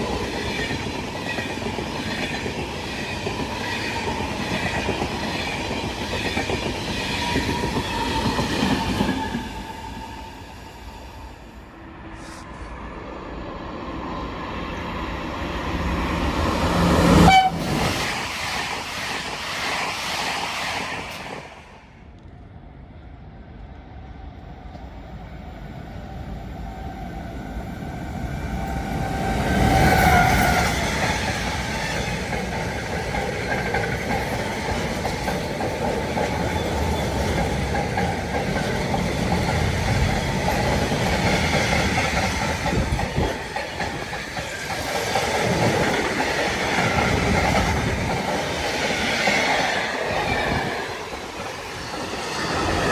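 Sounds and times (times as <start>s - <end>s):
train wheels clattering on rails: 0.0s - 10.0s, 28.5s - 52.9s
short train horn: 17.2s - 17.8s.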